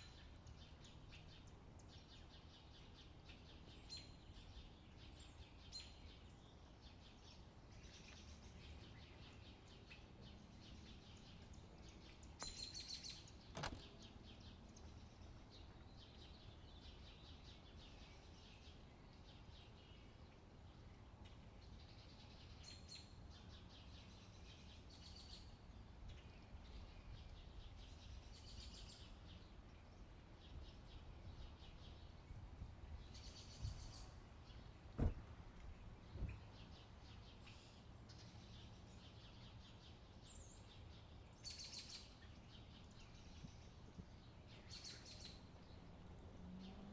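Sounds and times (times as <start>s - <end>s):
sharp click: 13.5s - 13.9s.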